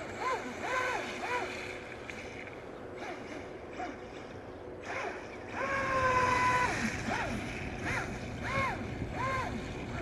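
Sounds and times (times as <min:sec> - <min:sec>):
speedboat motor and water rush: 0:00.0 - 0:10.0.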